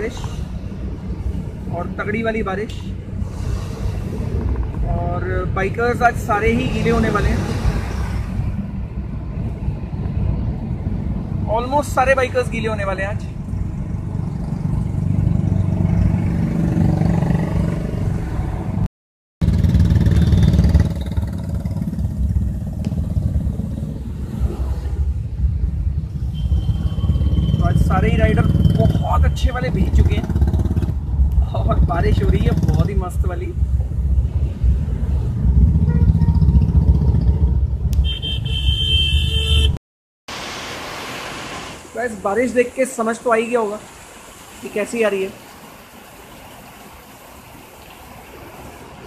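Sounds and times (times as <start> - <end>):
car engine and road rumble: 0.0 - 49.0
vehicle horn: 35.8 - 36.4, 38.0 - 39.8
car driving on wet road: 40.3 - 49.0.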